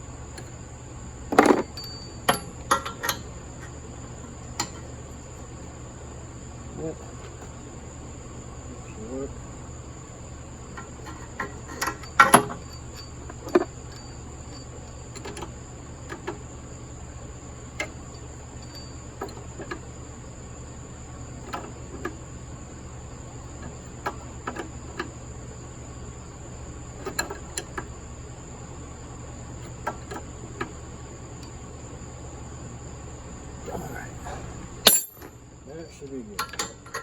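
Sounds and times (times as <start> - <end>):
hand tools clinking and knocking: 10.8 - 15.5, 33.8 - 35.4, 36.4 - 37.0.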